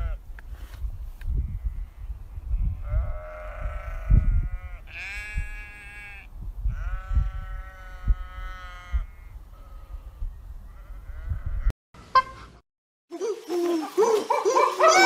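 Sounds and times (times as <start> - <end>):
sheep bleating: 2.8 - 9.9.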